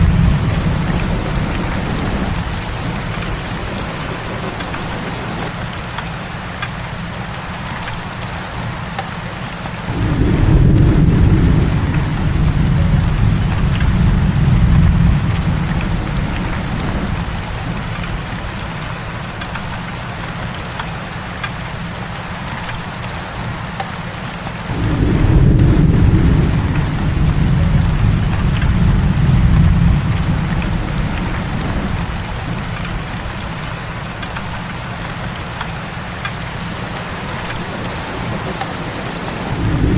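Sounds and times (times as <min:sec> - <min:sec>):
thunder rumbling: 0:00.0 - 0:05.6, 0:09.9 - 0:19.4, 0:24.7 - 0:35.6, 0:36.5 - 0:39.9
heavy rain: 0:00.0 - 0:39.9.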